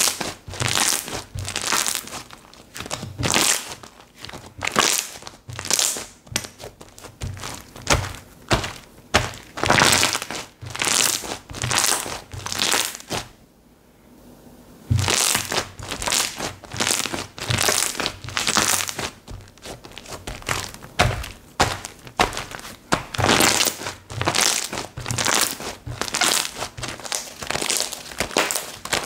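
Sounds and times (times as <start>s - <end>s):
slime squished by hand: 14.9s - 29.0s.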